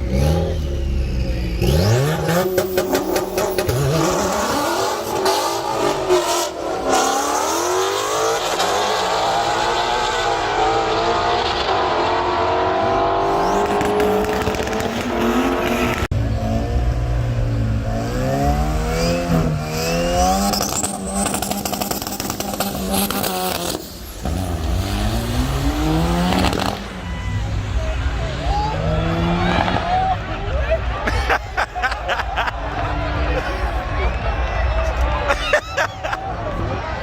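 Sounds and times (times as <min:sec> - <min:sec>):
car engine revving hard: 0:00.0 - 0:17.1, 0:17.7 - 0:27.0.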